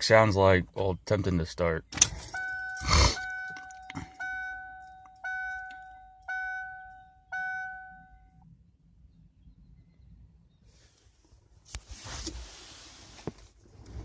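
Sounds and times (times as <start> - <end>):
dashboard warning chime dinging: 2.0 - 8.5.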